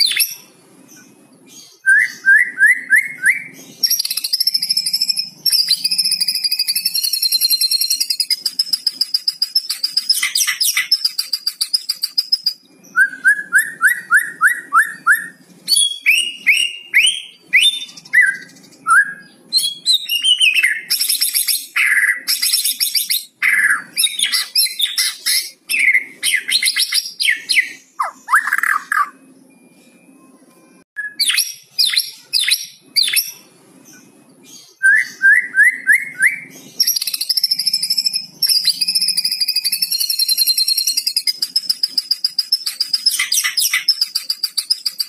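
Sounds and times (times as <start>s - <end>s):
songbird singing: 0.0s - 45.0s.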